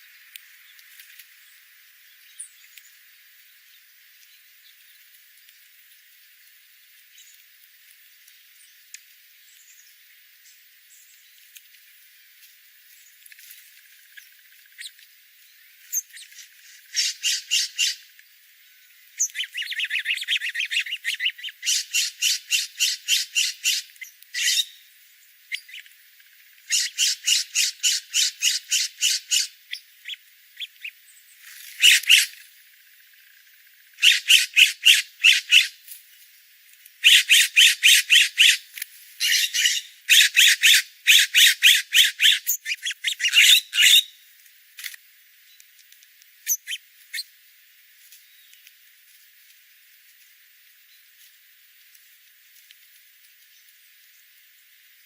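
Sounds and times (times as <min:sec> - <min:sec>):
small birds chattering: 0:00.0 - 0:07.5, 0:12.8 - 0:35.8, 0:36.8 - 0:44.4, 0:45.4 - 0:49.0.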